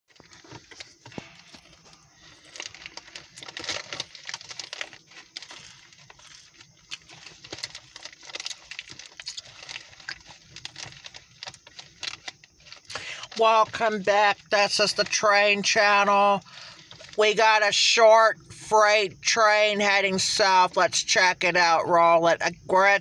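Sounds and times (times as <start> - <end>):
rustling and crackling: 0.1 - 17.3.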